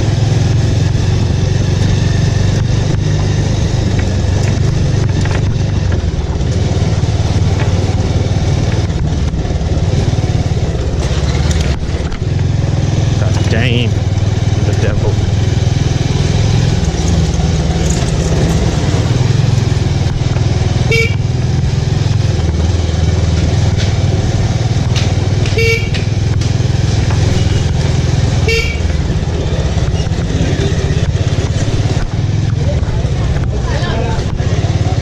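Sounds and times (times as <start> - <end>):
motorcycle engine running: 0.0 - 35.0
vehicle horn beeps: 20.8 - 21.4, 25.5 - 26.1, 27.3 - 27.8, 28.4 - 29.0.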